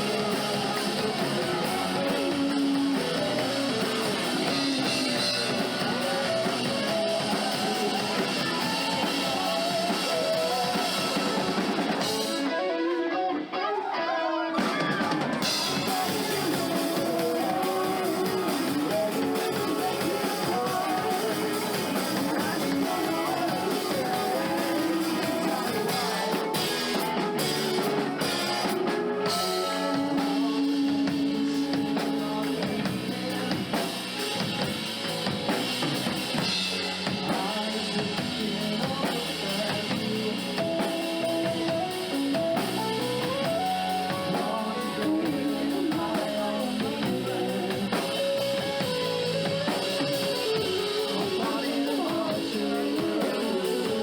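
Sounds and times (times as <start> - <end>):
drum kit beat: 0.0 - 12.6, 14.6 - 54.0
guitar: 0.0 - 54.0
live rock band playing: 0.0 - 54.0.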